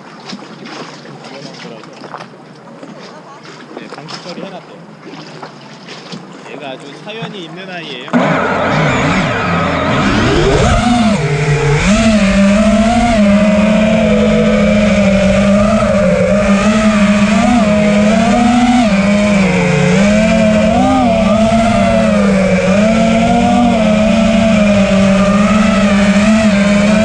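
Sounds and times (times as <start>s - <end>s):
quadcopter motors buzzing: 8.1s - 27.0s.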